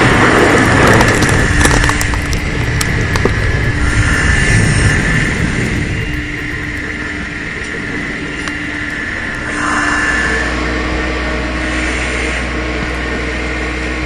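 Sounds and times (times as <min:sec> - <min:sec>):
engine running: 0:00.0 - 0:08.5.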